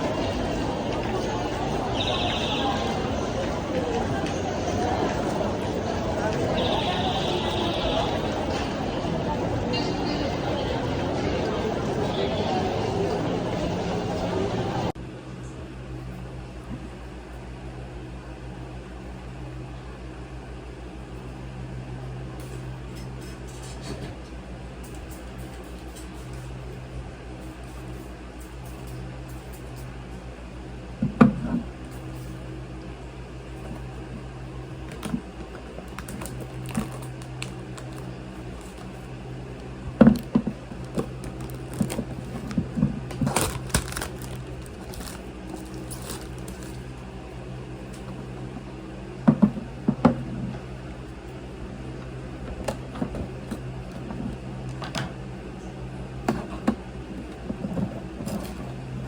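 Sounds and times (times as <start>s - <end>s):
appliance humming: 0.0s - 15.0s, 30.2s - 59.0s.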